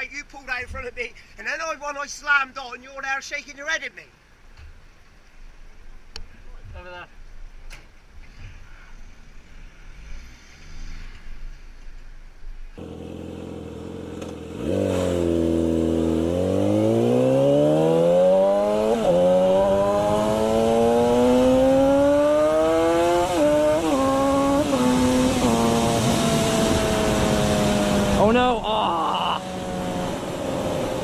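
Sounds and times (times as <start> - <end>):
motorcycle engine accelerating: 12.7 - 31.0.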